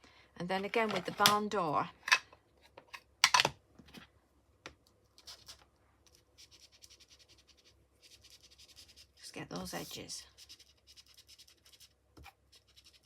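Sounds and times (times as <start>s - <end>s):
ink tool scratching on cardstock: 6.4s - 13.0s.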